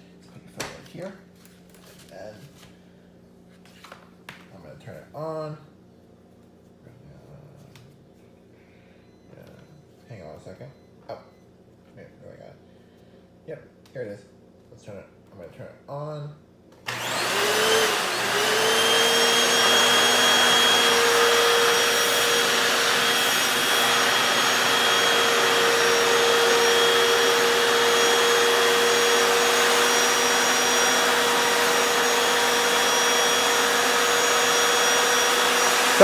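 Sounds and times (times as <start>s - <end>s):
floor cleaner suction motor: 16.9s - 36.0s
steady motor whine: 16.9s - 36.0s.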